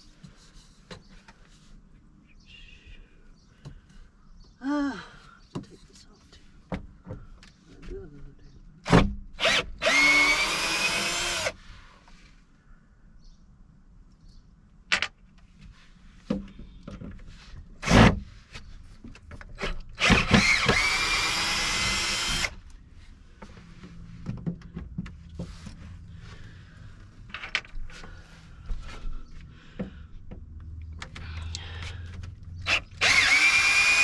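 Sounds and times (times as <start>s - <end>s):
power drill running: 9.4s - 11.6s, 20.0s - 22.6s, 32.6s - 34.0s.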